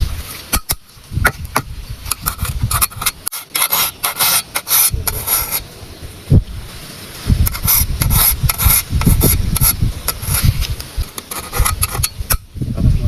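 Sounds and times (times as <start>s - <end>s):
file rasping on saw teeth: 2.2s - 5.6s, 7.5s - 10.5s, 11.2s - 12.2s.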